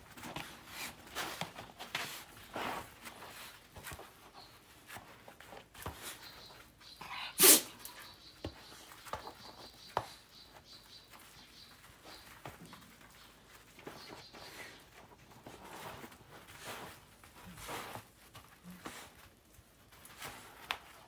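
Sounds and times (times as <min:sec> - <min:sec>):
light taps and scuffs: 0:00.0 - 0:07.0, 0:07.8 - 0:21.0
dog short loud vocal sound: 0:07.4 - 0:07.8.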